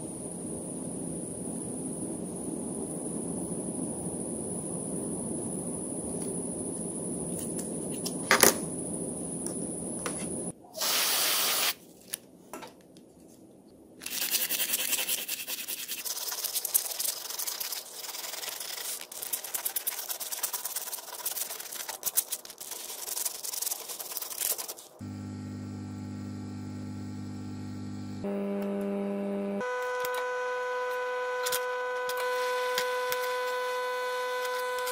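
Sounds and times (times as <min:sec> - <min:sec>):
burst of hiss: 0:10.8 - 0:11.8
rubbing and scraping: 0:14.0 - 0:25.0
steady multi-pitch tone: 0:25.0 - 0:34.9.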